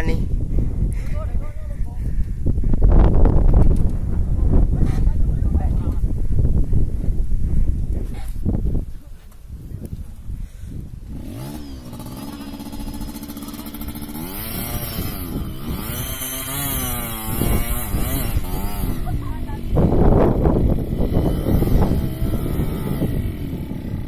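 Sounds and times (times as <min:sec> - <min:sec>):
motorcycle engine revving: 0:10.8 - 0:24.0
loud rough noise: 0:11.0 - 0:24.0.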